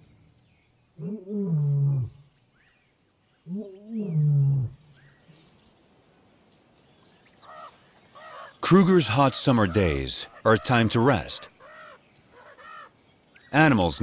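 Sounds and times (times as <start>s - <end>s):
lion roaring: 3.5s - 4.8s.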